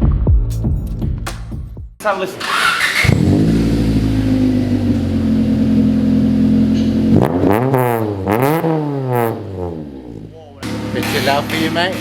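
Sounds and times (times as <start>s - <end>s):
car engine running and revving: 2.4s - 12.0s.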